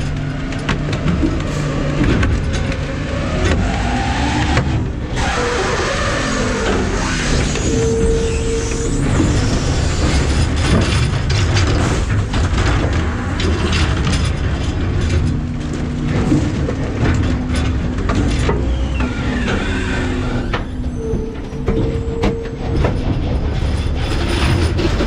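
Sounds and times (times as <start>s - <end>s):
hydraulic packer running: 0.0s - 25.0s
truck engine rumbling: 0.0s - 25.0s
trash cracking and snapping: 10.1s - 20.8s.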